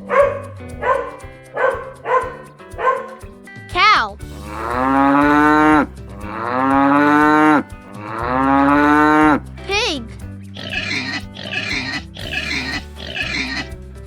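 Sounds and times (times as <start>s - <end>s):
dog bark: 0.0s - 3.2s
cow mooing: 4.4s - 9.4s.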